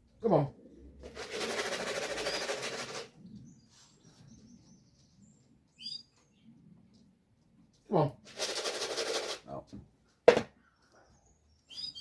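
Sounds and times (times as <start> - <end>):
pigeon wings flapping: 1.0 - 3.1, 8.3 - 9.4
faint bird chirps: 3.2 - 6.6, 10.6 - 12.0.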